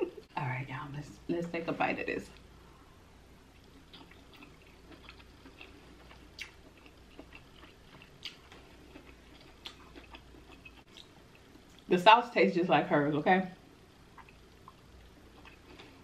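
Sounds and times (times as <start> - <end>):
chewing seafood: 3.5 - 11.9, 14.1 - 16.0.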